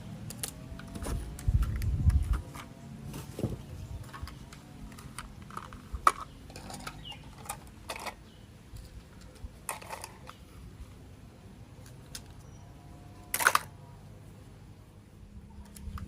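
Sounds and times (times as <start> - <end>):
plastic toy parts clicking: 4.1 - 8.2, 13.3 - 13.7.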